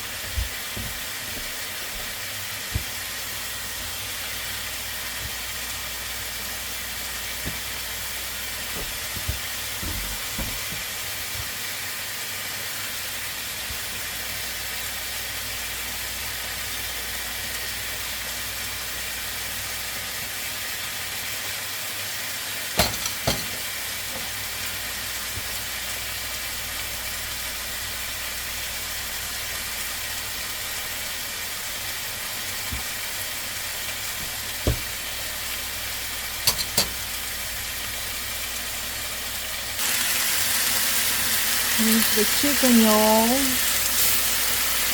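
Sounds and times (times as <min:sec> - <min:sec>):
chicken sizzling in a pan: 0:00.0 - 0:44.9
utensil knocking on pan: 0:22.8 - 0:23.6, 0:34.2 - 0:35.0, 0:36.4 - 0:37.0.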